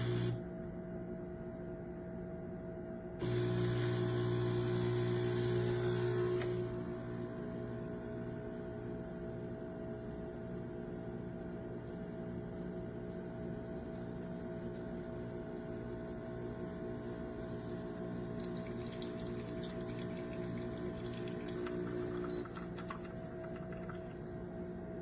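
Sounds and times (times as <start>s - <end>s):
steady multi-tone hum: 12.9s - 25.0s.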